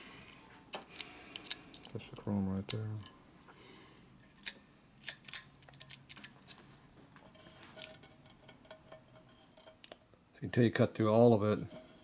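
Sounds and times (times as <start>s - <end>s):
light metallic clicks and scrapes: 4.0s - 10.0s.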